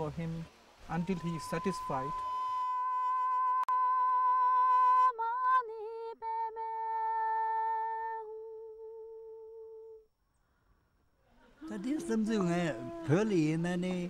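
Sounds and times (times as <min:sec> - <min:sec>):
person singing high held note: 0:11.6 - 0:13.5.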